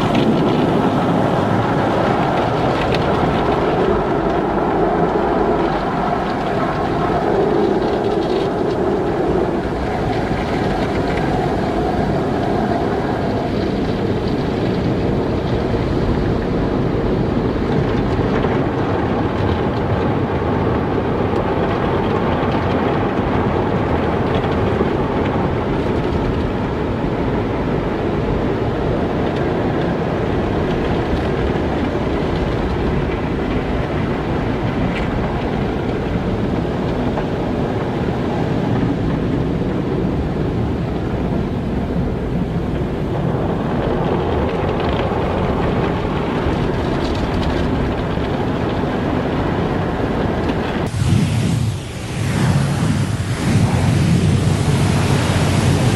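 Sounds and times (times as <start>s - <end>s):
car wash water spray rushing: 0.0s - 17.6s, 50.8s - 55.9s.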